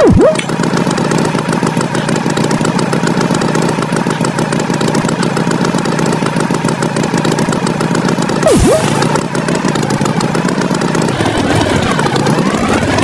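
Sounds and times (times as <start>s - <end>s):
tone diving and swooping in pitch: 0.0s - 0.5s, 8.4s - 9.3s
cartoon tractor engine chugging: 0.0s - 13.0s.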